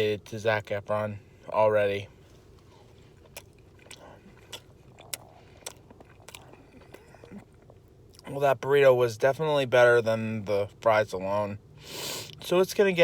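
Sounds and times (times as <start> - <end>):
person chewing food: 2.2 - 8.3
wet mouth clicks: 3.3 - 7.8.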